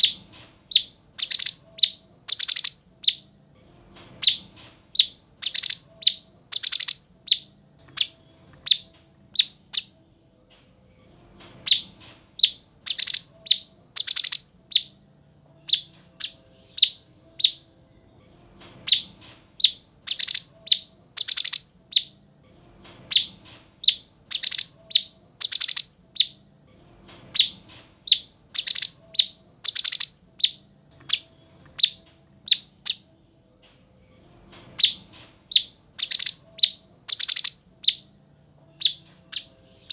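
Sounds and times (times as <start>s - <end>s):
bird singing chirps and calls: 0.7s - 3.2s, 5.0s - 7.4s, 12.4s - 14.9s, 19.6s - 22.1s, 23.9s - 25.9s, 28.1s - 31.2s, 35.6s - 38.0s.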